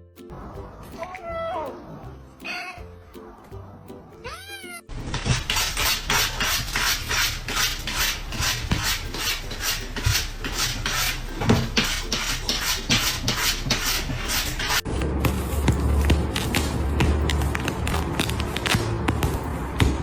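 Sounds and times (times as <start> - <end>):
soft background music: 0.0 - 20.0
cat meowing: 2.4 - 2.9, 4.2 - 4.9
rhythmic scratchy noise: 5.0 - 20.0.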